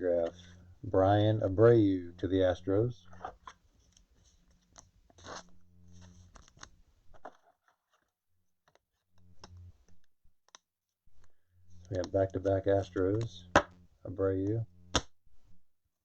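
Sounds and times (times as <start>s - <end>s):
trading cards rustling: 3.1s - 8.1s.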